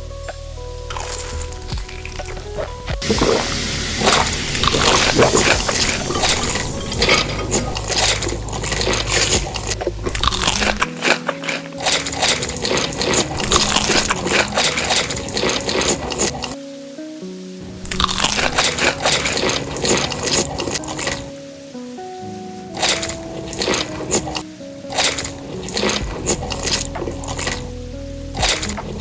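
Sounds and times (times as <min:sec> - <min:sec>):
food crunching and chewing: 0:00.9 - 0:16.6, 0:17.9 - 0:21.2, 0:22.8 - 0:27.7
wet mouth sounds: 0:00.9 - 0:16.6, 0:22.8 - 0:27.7.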